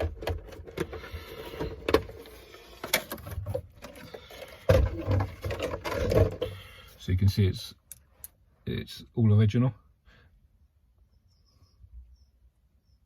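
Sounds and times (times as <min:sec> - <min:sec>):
bumping handling noise: 0:02.8 - 0:06.6.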